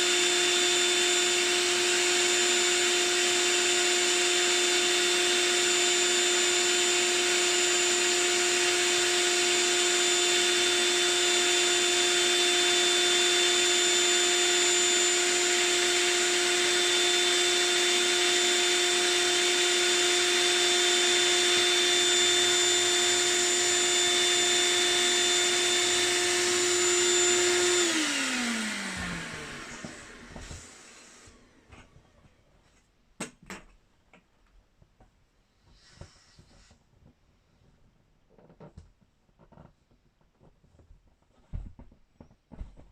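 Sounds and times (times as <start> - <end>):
electric blower motor whining: 0.0 - 32.2.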